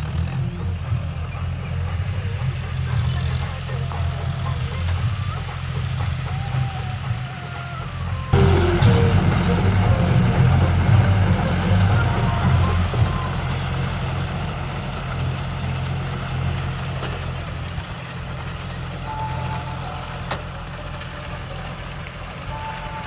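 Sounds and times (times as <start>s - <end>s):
tractor engine running: 0.0s - 23.0s
low hum: 8.2s - 23.0s.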